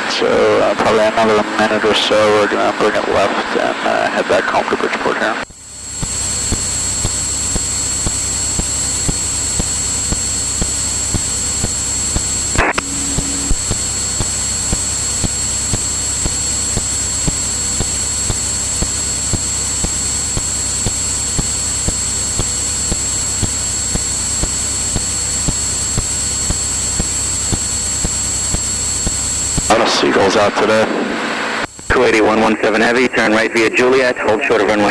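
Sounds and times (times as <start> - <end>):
airplane engine and propeller drone: 0.0 - 34.9
thin high whine: 0.0 - 34.9
intercom click: 12.2 - 14.8.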